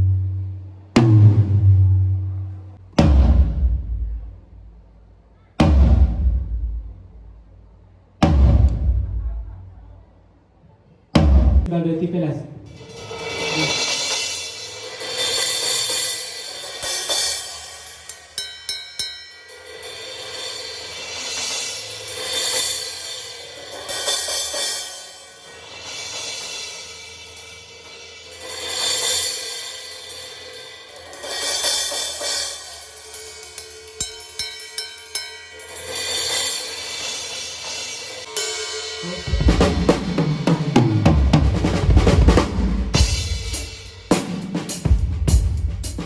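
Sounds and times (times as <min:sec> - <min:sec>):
sharp drum strikes: 0:03.0 - 0:04.6, 0:05.6 - 0:07.2, 0:08.2 - 0:09.3, 0:11.2 - 0:11.7, 0:35.9 - 0:46.0
cymbals washing: 0:12.7 - 0:46.0.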